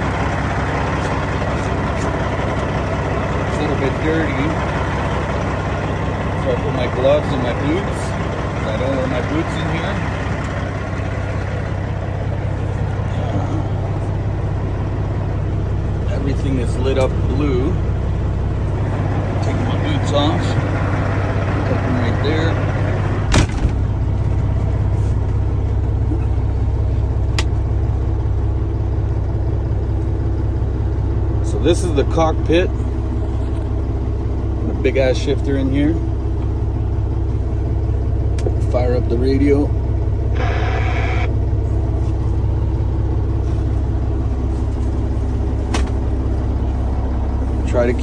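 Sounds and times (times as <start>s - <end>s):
diesel truck engine idling: 0.0s - 48.0s
thump: 23.3s - 23.8s.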